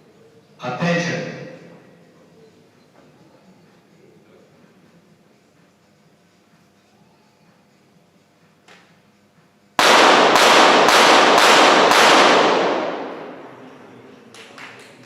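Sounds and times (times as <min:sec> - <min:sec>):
pistol shots echoing: 0:09.8 - 0:14.0.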